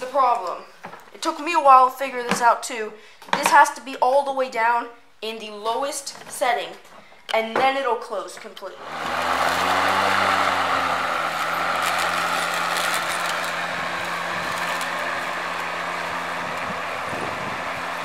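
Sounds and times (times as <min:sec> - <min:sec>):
lawnmower motor humming: 0:08.8 - 0:18.0.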